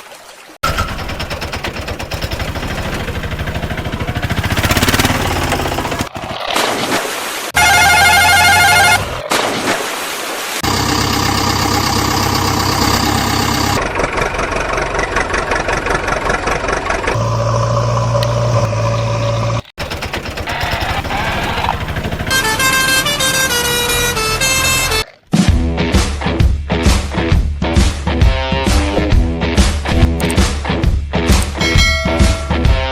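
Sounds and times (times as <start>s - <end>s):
vehicle engines running: 0.6s - 6.3s, 10.6s - 25.1s
vehicle horns: 7.6s - 9.2s, 20.4s - 25.1s.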